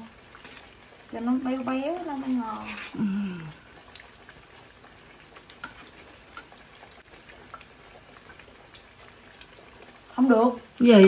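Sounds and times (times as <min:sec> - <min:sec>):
food frying in oil: 0:00.0 - 0:11.0
oil pops and crackles: 0:03.8 - 0:09.9.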